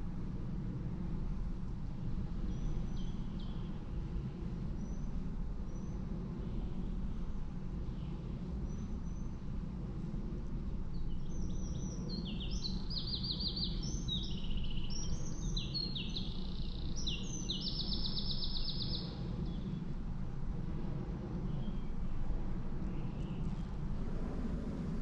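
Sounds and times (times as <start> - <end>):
steady low rumble: 0.0 - 25.0
songbird singing fast trills: 10.9 - 19.7.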